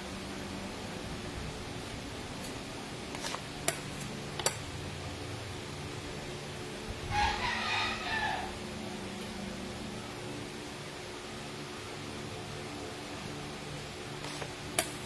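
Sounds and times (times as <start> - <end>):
steady background hum: 0.0 - 15.0
rooster crowing: 7.1 - 8.6.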